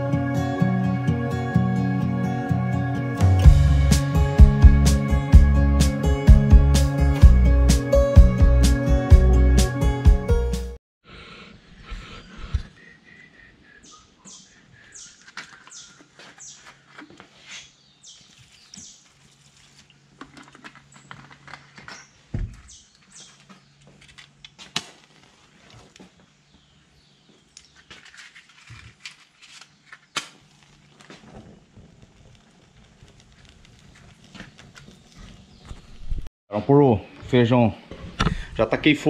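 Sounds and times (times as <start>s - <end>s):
small birds chirping: 11.8s - 19.5s, 21.8s - 24.0s, 26.1s - 28.0s, 34.5s - 36.2s.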